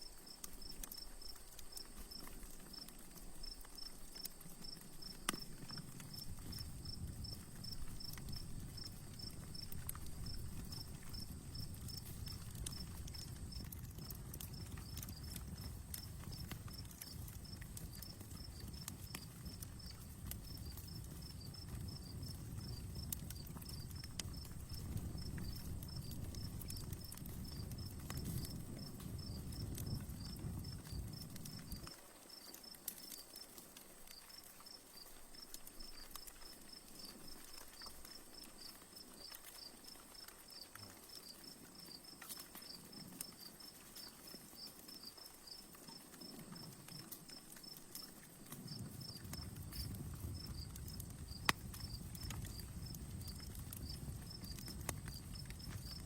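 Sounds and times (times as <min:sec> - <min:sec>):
insect chirping: 0:00.0 - 0:56.0
wood fire crackling: 0:00.0 - 0:56.0.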